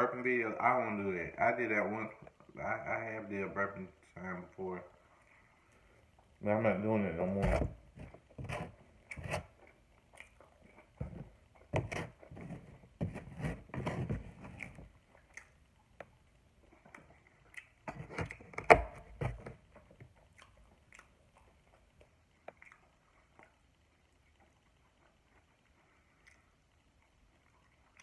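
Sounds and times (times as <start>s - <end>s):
wet chewing and biting: 7.4s - 23.7s.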